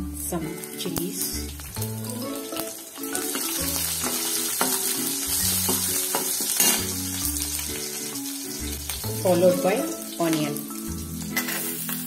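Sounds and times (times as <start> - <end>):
food sizzling in hot oil: 0.0 - 12.0
metal spatula scraping a pan: 3.3 - 7.0, 11.3 - 12.0
spatula tapping a pan: 3.4 - 5.0, 5.6 - 6.8.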